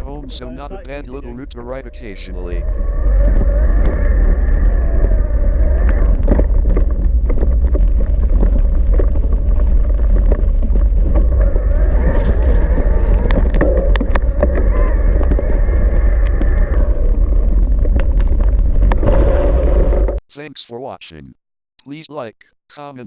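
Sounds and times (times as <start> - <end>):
wind rumble on microphone: 0.0 - 20.2.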